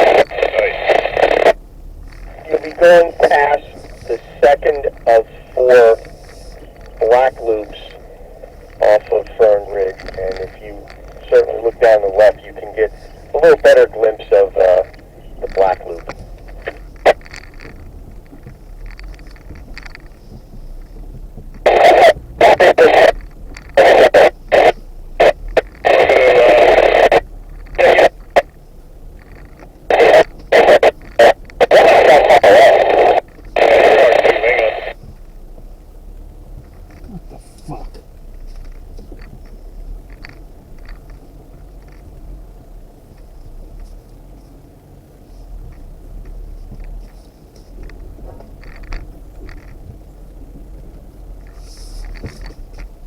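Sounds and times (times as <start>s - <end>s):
distorted voice over radio: 0.0s - 17.3s, 21.6s - 28.5s, 29.6s - 35.0s, 37.0s - 38.1s
low background noise: 0.0s - 53.0s
off-road vehicle engine running: 0.0s - 53.0s
light clicks and rattles: 0.4s - 53.0s.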